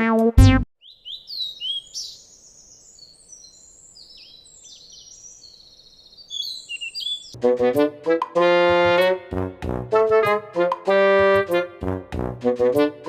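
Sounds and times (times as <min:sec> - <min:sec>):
bird chirping: 0:00.8 - 0:07.4.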